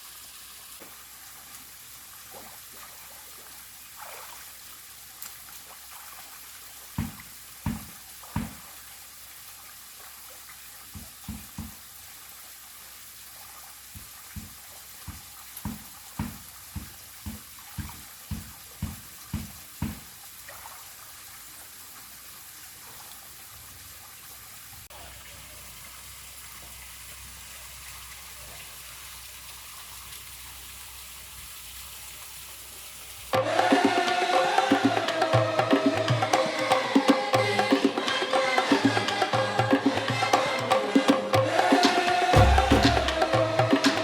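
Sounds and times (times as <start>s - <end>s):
waterfall and stream rushing: 0.0s - 10.1s, 10.8s - 21.5s, 28.9s - 44.0s
soft low thumps: 14.0s - 20.1s.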